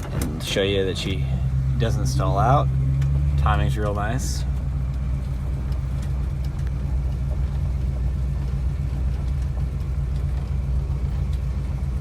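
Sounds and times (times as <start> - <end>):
van engine idling: 0.0 - 12.0
man speaking: 0.4 - 2.8, 3.4 - 4.5.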